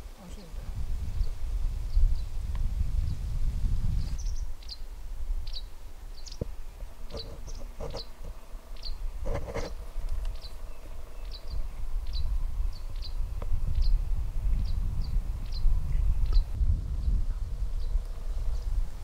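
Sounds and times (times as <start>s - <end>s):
wind rumble on microphone: 0.0s - 19.0s
small bird chirping: 3.9s - 14.0s, 14.6s - 18.7s.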